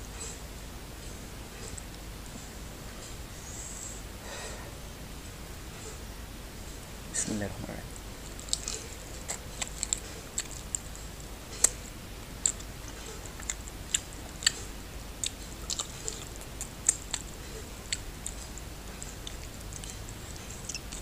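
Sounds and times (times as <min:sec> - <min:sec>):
wet mouth clicks and smacks: 0:12.4 - 0:21.0.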